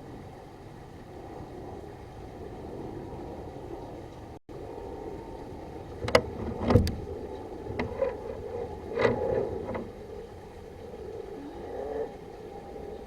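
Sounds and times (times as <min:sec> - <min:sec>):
steady hum: 0:00.0 - 0:13.0
sharp clicks and knocks: 0:06.0 - 0:07.0, 0:07.7 - 0:10.0.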